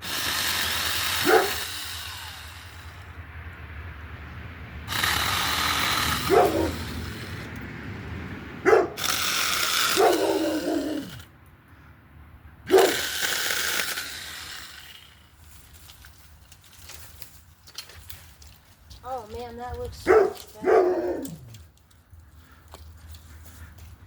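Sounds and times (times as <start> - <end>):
mini chainsaw cutting branches: 0.0 - 3.2, 4.8 - 7.7, 9.0 - 11.3, 12.7 - 21.8.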